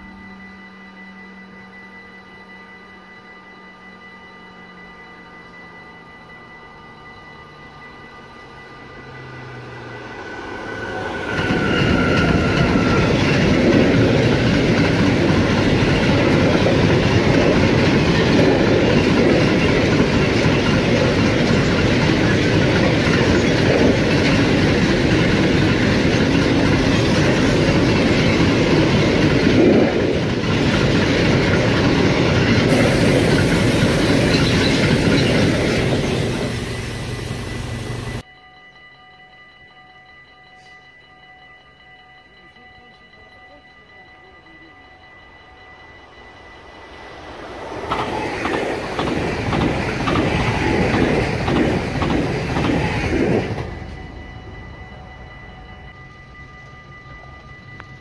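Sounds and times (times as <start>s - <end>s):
freight train wheels rumbling: 8.5s - 38.2s, 45.5s - 58.0s.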